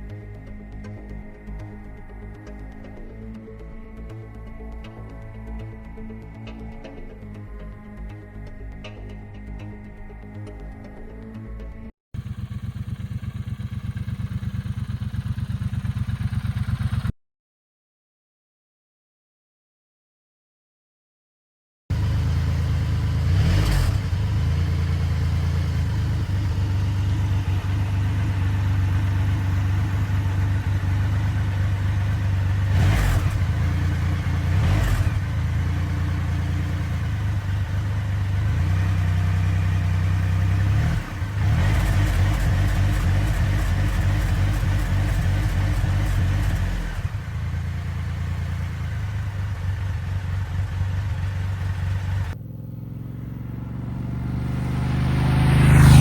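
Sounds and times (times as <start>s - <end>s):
motorcycle engine revving: 12.2s - 17.1s, 21.9s - 56.0s.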